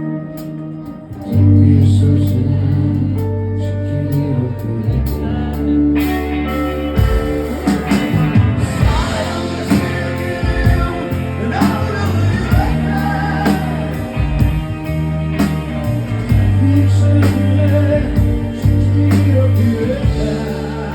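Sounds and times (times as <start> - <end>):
wordless melodic singing: 0.0 - 20.9
rock band playing: 5.1 - 20.9.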